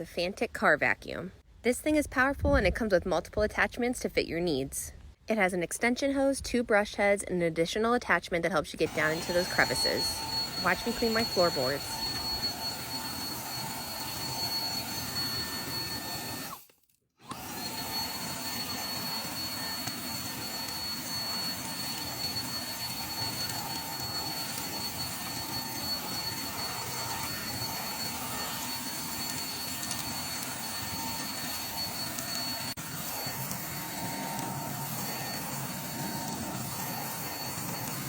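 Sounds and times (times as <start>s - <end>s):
handheld vacuum cleaner running: 8.8s - 38.0s.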